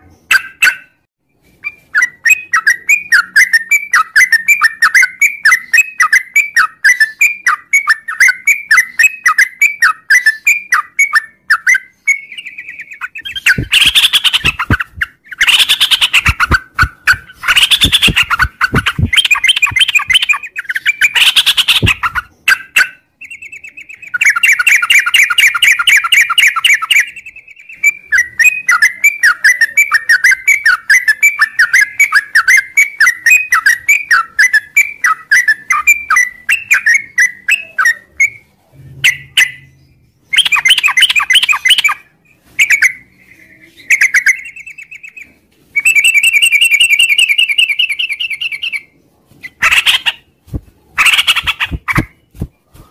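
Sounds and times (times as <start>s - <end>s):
bulbul rapid chattering song: 2.0s - 38.4s, 40.3s - 45.2s, 51.0s - 52.5s.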